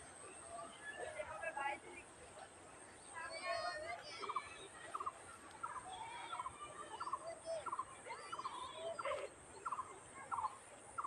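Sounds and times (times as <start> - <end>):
faint far-off voices: 0.0 - 11.0.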